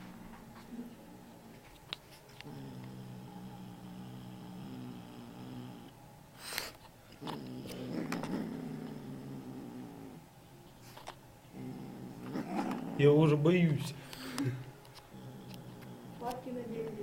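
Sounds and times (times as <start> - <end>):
kitten growling: 2.4 - 6.0, 7.1 - 10.2, 11.5 - 13.2, 14.2 - 17.0.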